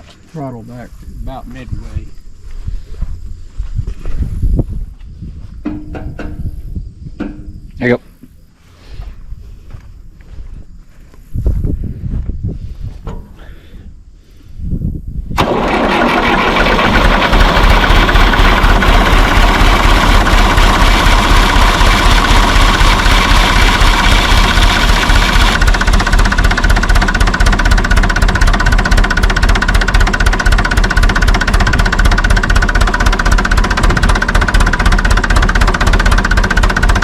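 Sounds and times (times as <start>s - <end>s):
tractor engine knocking: 15.4s - 37.0s.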